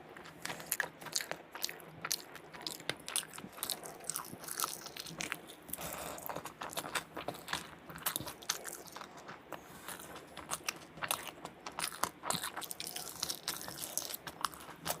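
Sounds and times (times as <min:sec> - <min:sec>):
person chewing crunchy food: 0:00.0 - 0:15.0.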